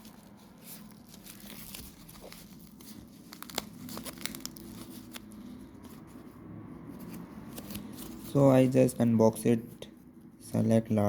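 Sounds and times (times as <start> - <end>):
packaging crinkling: 0.0 - 5.6.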